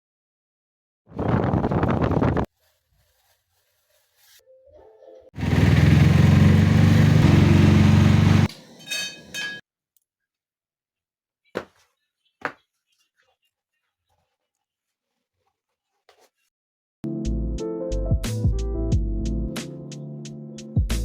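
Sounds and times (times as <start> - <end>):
motor hum: 5.4 - 8.5.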